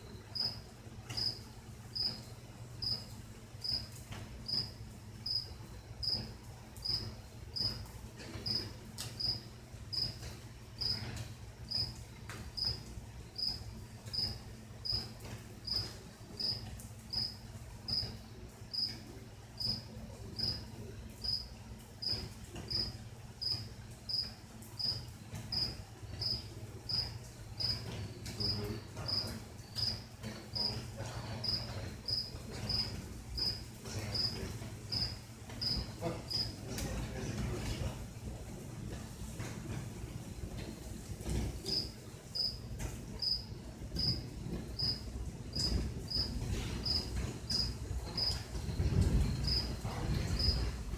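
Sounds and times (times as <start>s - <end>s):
cricket chirping: 0.4s - 1.4s, 2.0s - 3.9s, 4.5s - 7.8s, 8.4s - 11.1s, 11.7s - 12.0s, 12.6s - 12.8s, 13.4s - 19.0s, 19.6s - 19.8s, 20.4s - 20.6s, 21.2s - 27.8s, 28.4s - 30.0s, 30.6s - 30.8s, 31.4s - 36.6s, 41.7s - 42.6s, 43.2s - 50.6s.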